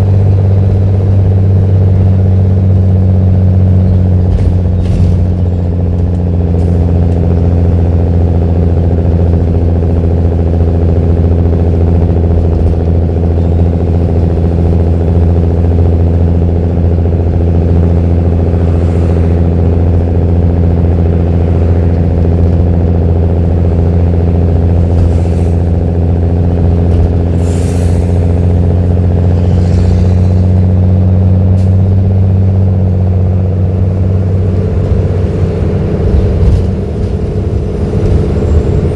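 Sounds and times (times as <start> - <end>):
diesel bus engine idling: 0.0 - 38.9.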